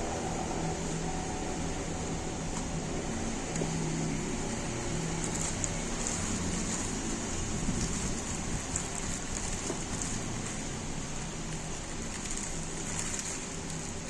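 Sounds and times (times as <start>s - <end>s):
wavering low drone: 0.0s - 6.1s
constant hiss: 0.0s - 14.0s
mechanical hum: 0.0s - 14.0s.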